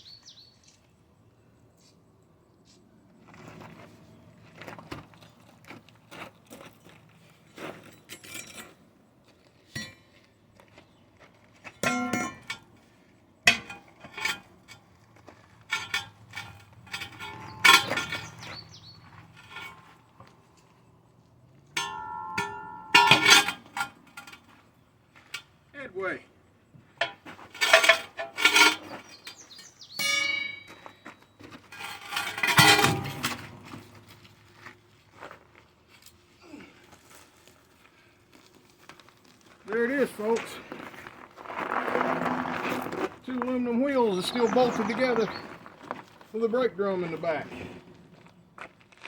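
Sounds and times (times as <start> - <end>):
metal tools clanking on wheels: 7.5 - 8.8, 11.7 - 12.9, 13.5 - 20.0, 21.7 - 24.6, 27.0 - 34.7.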